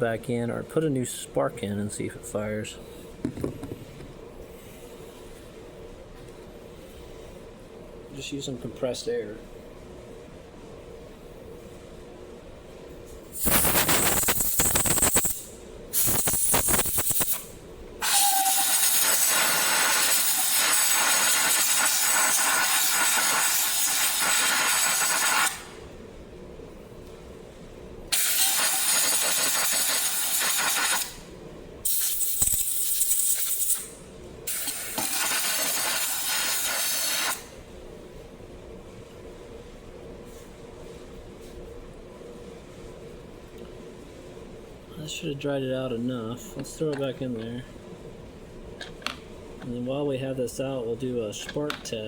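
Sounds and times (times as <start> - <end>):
compressed air blowgun hissing: 13.4 - 15.4, 16.0 - 17.4, 18.0 - 25.7, 28.1 - 31.2, 34.5 - 37.4.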